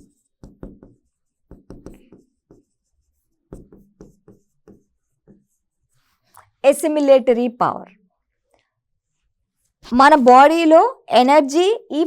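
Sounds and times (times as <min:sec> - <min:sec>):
pen scratching while writing: 0:00.0 - 0:06.2.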